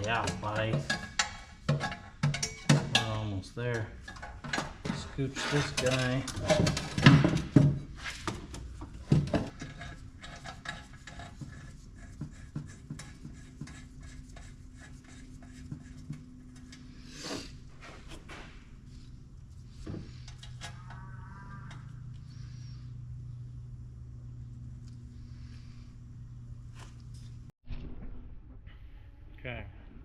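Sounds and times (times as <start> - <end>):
metal parts clinking and scraping: 0.0 - 7.8, 20.1 - 22.5
low hum: 2.2 - 30.0.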